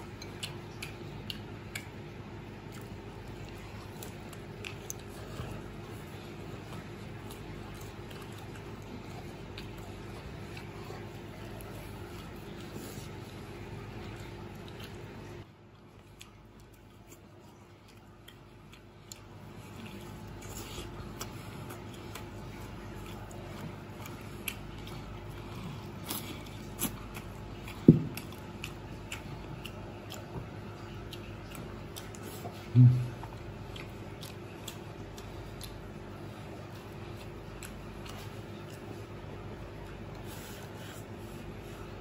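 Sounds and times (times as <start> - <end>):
person chewing food: 0.0 - 42.0.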